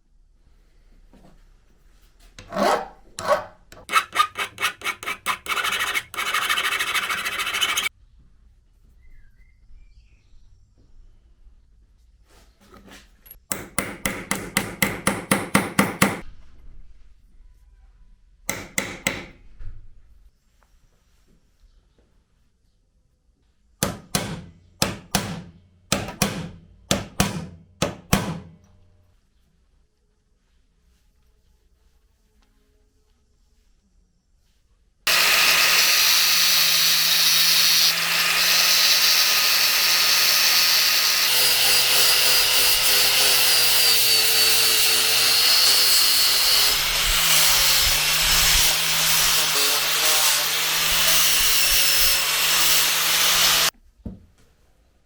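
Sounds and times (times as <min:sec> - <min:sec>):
rasp scraping on metal: 0:02.4 - 0:07.9.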